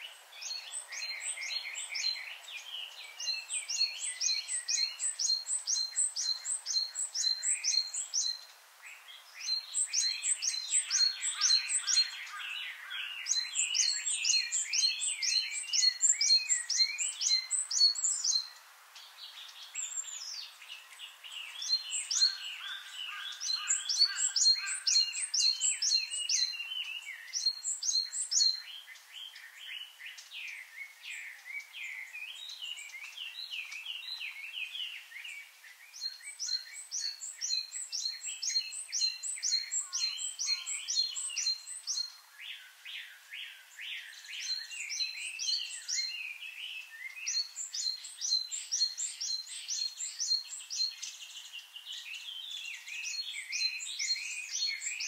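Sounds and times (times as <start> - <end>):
birds twittering: 0.0 - 55.0.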